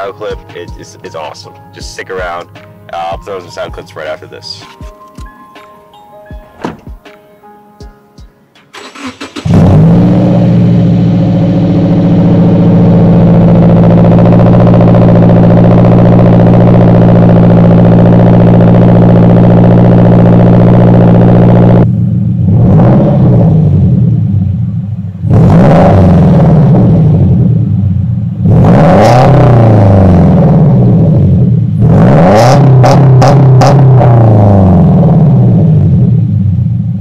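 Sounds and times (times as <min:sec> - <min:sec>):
car engine idling with deep rumble: 0:00.0 - 0:04.6, 0:08.6 - 0:37.0
car engine starting: 0:08.5 - 0:37.0
car engine revving: 0:08.6 - 0:37.0.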